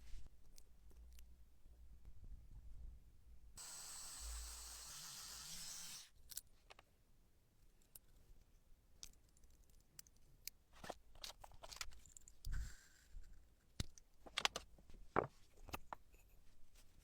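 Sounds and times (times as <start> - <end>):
steady hiss: 3.6 - 6.1.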